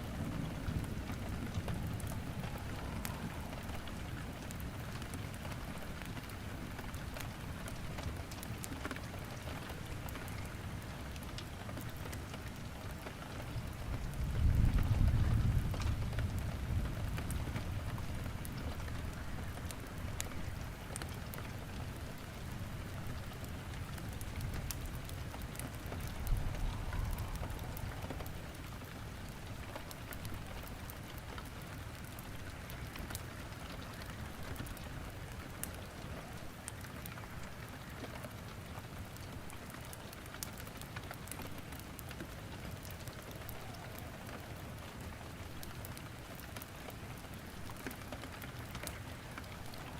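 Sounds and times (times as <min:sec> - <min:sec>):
steady rain hiss: 0:00.0 - 0:49.9
wood fire crackling: 0:00.0 - 0:49.9
low rumble: 0:26.1 - 0:28.8.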